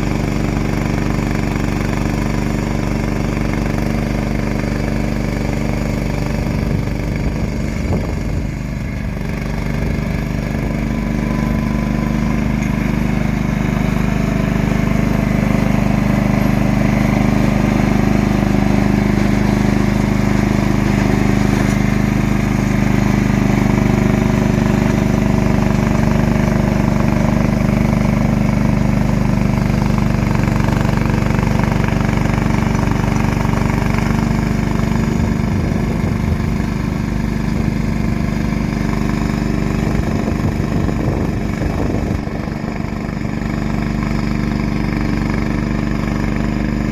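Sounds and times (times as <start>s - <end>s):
tractor engine running steadily: 0.0s - 46.9s.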